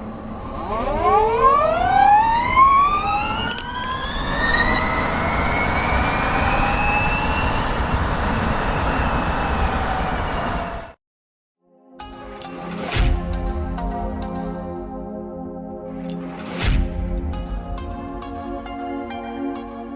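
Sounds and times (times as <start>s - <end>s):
electric motor whining: 0.0s - 10.9s
rushing road noise: 0.0s - 10.9s.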